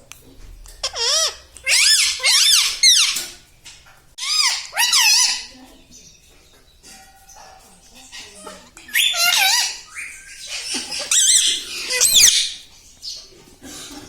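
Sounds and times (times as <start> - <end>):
pet animal wavering cries: 0.8 - 3.1.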